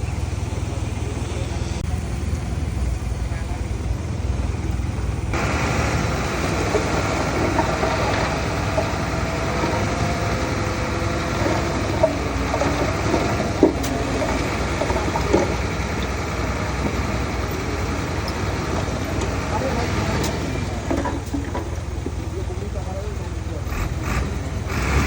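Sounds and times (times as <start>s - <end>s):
deep diesel engine rumble: 0.0s - 25.0s.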